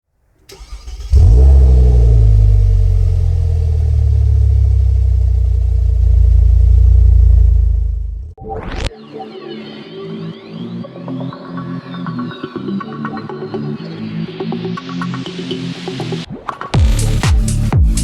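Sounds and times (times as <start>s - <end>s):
car engine starting and running: 0.5s - 8.4s.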